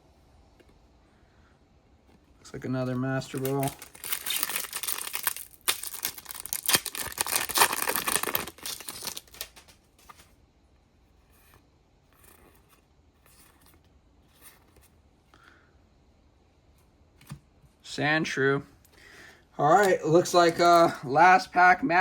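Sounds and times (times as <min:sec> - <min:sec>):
trading cards rustling: 0:02.8 - 0:10.4, 0:19.8 - 0:21.1
foil wrapper crinkling and tearing: 0:03.2 - 0:10.2.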